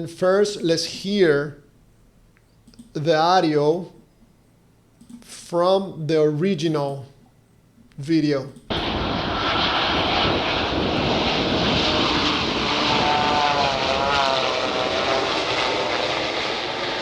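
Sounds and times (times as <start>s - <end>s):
jet engines roaring: 8.7s - 17.0s
wavering whine: 8.7s - 17.0s.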